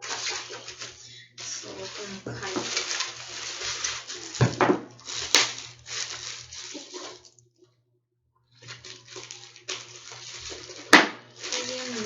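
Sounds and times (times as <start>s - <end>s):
handling noise rustling: 0.0s - 7.3s.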